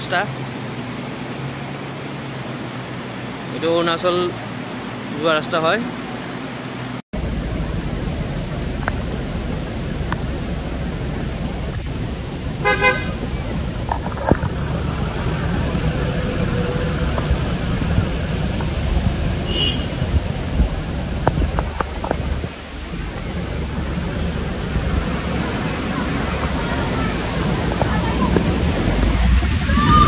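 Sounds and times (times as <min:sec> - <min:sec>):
heavy rain on a road: 0:00.0 - 0:30.0
car horn toot: 0:12.6 - 0:13.2, 0:19.4 - 0:20.1.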